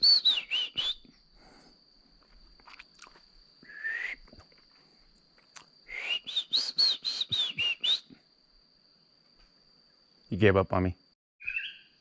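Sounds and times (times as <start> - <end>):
bird singing whistled notes: 0.0 - 1.2, 5.9 - 8.1, 11.4 - 12.0.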